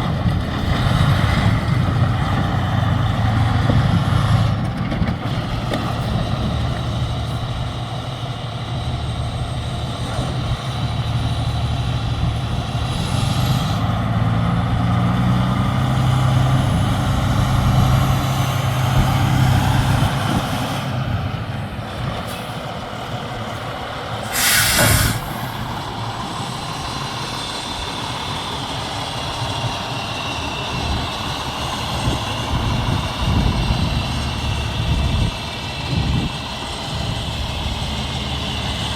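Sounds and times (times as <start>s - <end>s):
truck diesel engine running: 0.0s - 38.9s
air brake hiss: 24.2s - 25.7s.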